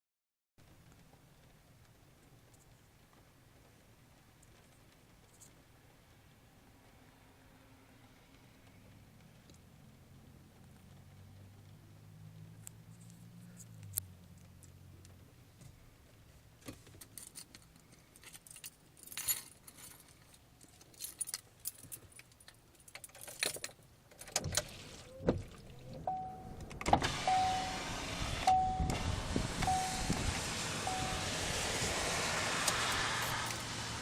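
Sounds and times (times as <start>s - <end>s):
car keys jingling: 17.0s - 27.9s
car noise rushing: 24.4s - 34.0s
car warning chime beeping: 25.7s - 30.2s, 30.8s - 31.5s.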